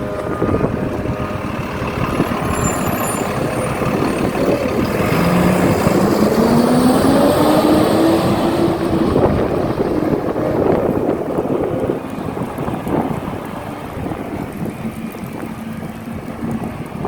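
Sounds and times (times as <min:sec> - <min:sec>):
garbage truck engine rising in pitch: 0:00.0 - 0:17.0.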